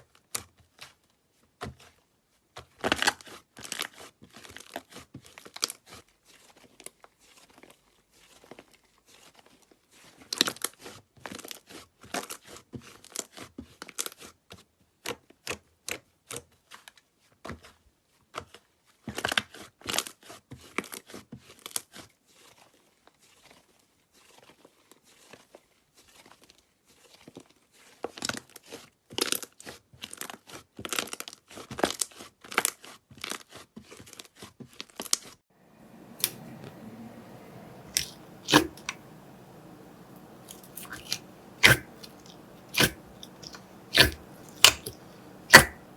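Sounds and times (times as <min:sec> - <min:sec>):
slime crackling pops: 0:36.0 - 0:45.9.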